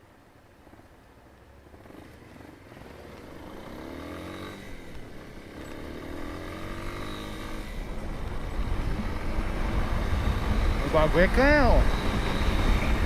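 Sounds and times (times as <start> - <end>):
motorcycle engine accelerating: 1.4 - 13.0
low wind rumble: 6.0 - 13.0.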